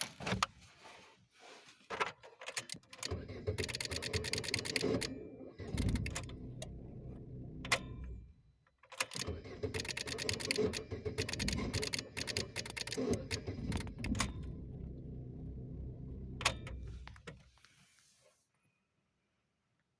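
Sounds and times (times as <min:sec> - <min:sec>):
low engine sound: 0:05.6 - 0:08.4, 0:13.1 - 0:17.1
starter relay clicking: 0:08.9 - 0:14.6.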